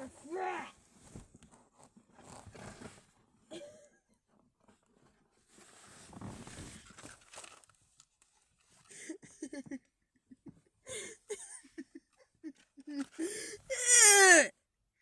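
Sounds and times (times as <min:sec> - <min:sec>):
soft rustle: 0:04.6 - 0:08.9
person's wordless vocal sounds: 0:12.9 - 0:14.5.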